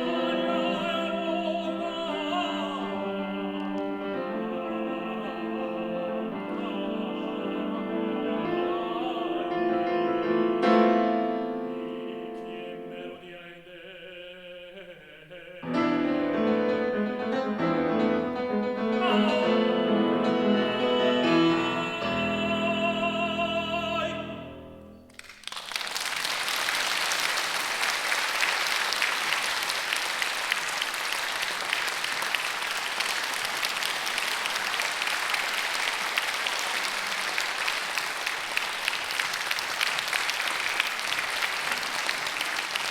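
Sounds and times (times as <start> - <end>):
piano accompaniment: 0.0 - 13.3, 15.6 - 25.2
tenor singing: 0.0 - 25.0
audience applauding: 25.1 - 42.9.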